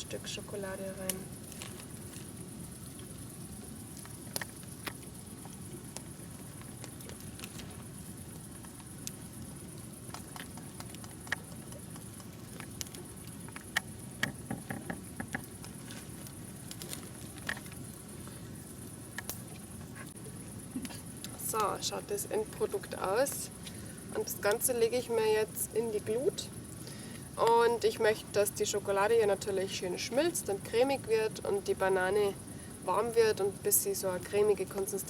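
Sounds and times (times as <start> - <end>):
soft clicks and crackles: 1.0 - 18.5, 19.1 - 20.2.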